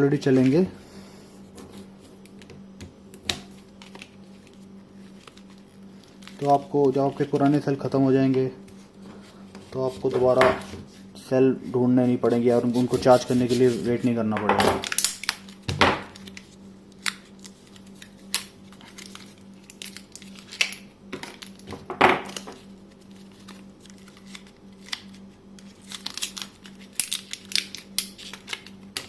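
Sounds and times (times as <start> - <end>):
plastic packaging crinkling: 3.5 - 7.9, 14.8 - 21.7, 22.3 - 29.0.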